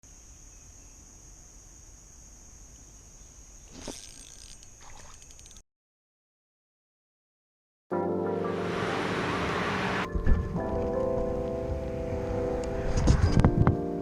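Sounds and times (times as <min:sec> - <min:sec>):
insects droning: 0:00.0 - 0:05.6.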